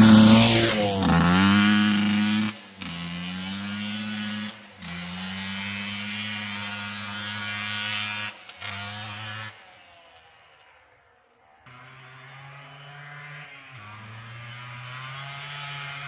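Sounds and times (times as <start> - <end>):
two-stroke engine running: 0.0 - 9.3.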